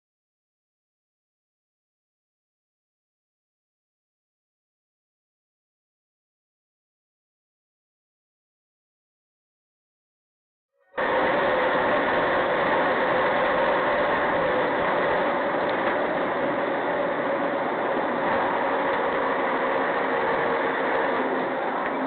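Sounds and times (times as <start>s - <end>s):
road noise: 10.9s - 22.0s
car engine: 11.0s - 22.0s.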